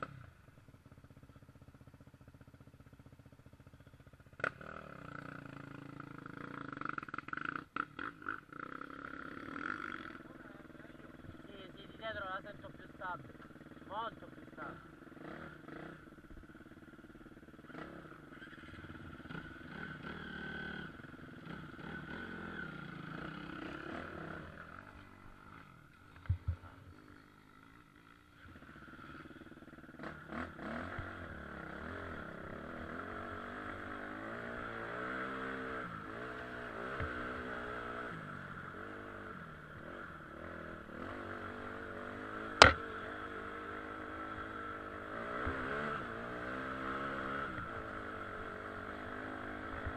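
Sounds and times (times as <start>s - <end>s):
dirt bike engine running: 0.0s - 49.9s
sharp knocks: 42.6s - 42.8s.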